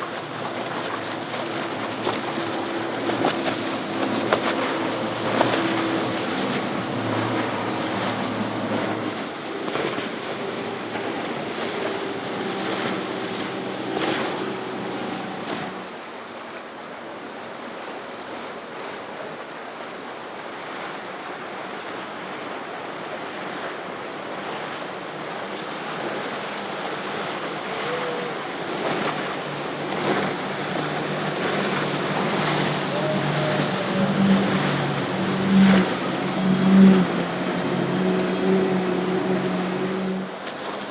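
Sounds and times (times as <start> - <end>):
wind on microphone: 0.0 - 15.9, 26.9 - 40.8
boat engine drone: 0.0 - 16.2, 23.1 - 40.9
waves washing: 0.0 - 16.2, 22.4 - 40.9.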